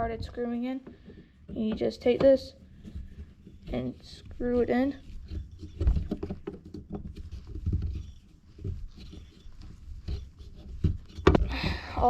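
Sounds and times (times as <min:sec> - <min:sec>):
wood scratching against metal: 0:00.0 - 0:11.8
dull thumps: 0:00.0 - 0:12.0.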